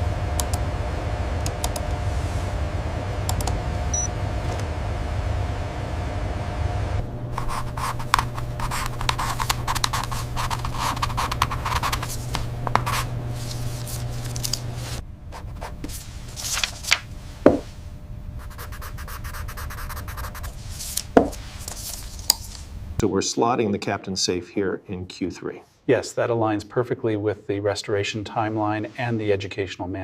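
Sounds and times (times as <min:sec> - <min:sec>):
low steady hum: 0:00.0 - 0:24.0
scratching and clicking by hand: 0:07.4 - 0:13.1.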